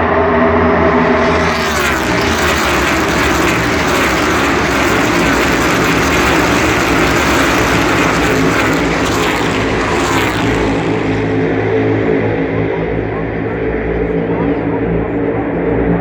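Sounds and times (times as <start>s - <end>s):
race cars passing at speed: 1.0s - 11.7s.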